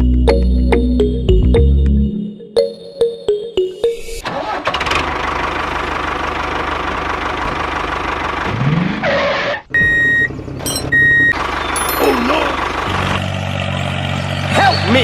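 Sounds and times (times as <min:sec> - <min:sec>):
engine running: 0:04.2 - 0:15.0.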